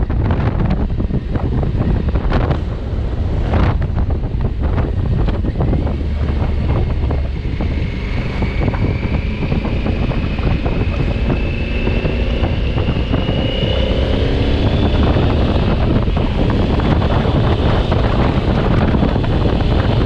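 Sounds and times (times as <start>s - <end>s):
motorcycle engine accelerating: 0.0s - 20.0s
wind buffeting microphone: 0.0s - 20.0s.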